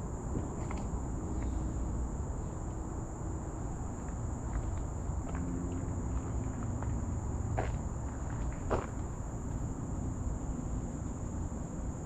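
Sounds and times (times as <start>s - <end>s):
faint footsteps on trail: 4.0s - 9.7s
high-pitched insect drone: 4.4s - 8.4s.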